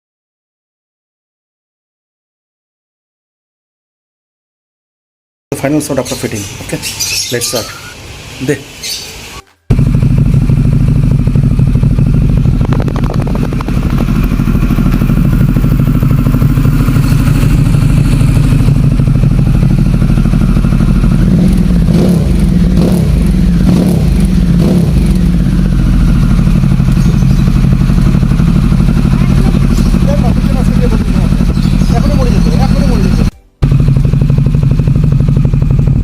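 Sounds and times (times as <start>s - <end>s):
motorcycle engine idling: 9.7s - 36.0s.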